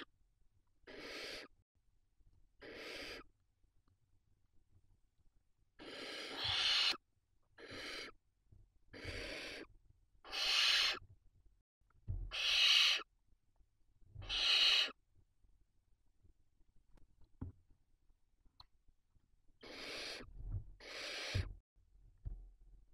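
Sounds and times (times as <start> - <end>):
owl nestlings hissing calls: 0.9 - 1.5, 2.6 - 3.3, 5.8 - 7.0, 7.6 - 8.2, 8.9 - 11.0, 12.3 - 13.1, 14.2 - 15.0, 19.6 - 21.5.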